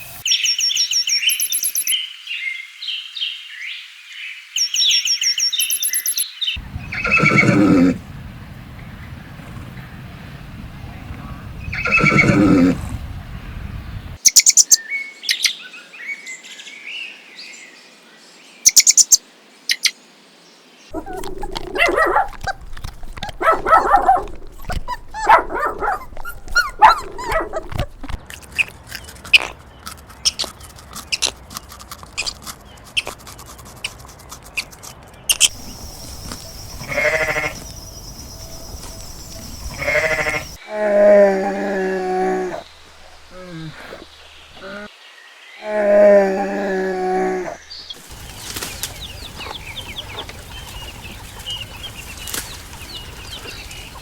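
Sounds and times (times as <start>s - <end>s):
sharp clicks and chirps: 1.2s - 2.0s, 5.5s - 6.3s, 33.8s - 40.6s
goats bleating: 36.8s - 37.6s, 39.7s - 40.6s.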